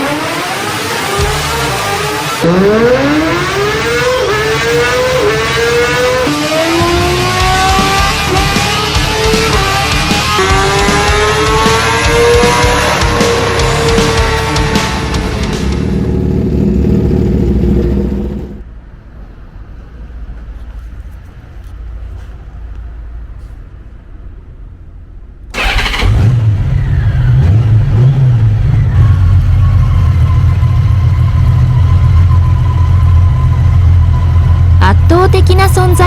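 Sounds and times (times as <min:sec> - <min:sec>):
music: 0:01.0 - 0:02.4, 0:06.8 - 0:16.0
motorcycle engine starting and idling: 0:05.0 - 0:18.6, 0:25.5 - 0:32.4.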